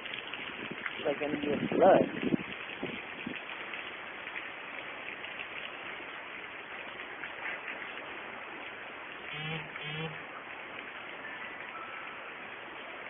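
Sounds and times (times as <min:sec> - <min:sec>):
heavy rain falling: 0:00.0 - 0:13.0
short low-pitched sounds: 0:09.3 - 0:10.2.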